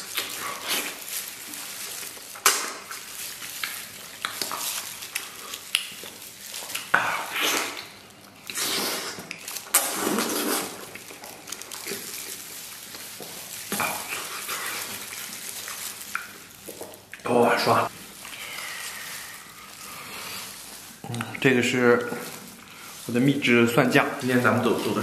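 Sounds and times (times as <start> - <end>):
wet chewing and lip smacking: 0.0 - 17.3
slurping: 0.0 - 25.0.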